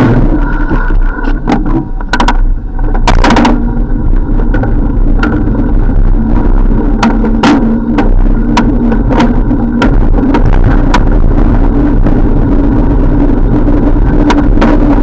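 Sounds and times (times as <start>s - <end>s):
bicycle road noise hum: 0.0s - 15.0s
bicycle clicks and knocks: 0.7s - 3.7s, 6.9s - 11.2s.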